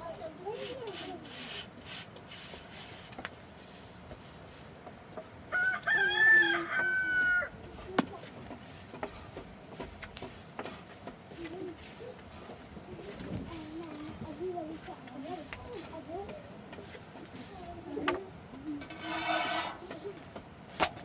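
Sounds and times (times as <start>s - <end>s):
rooster crowing: 5.5s - 7.5s.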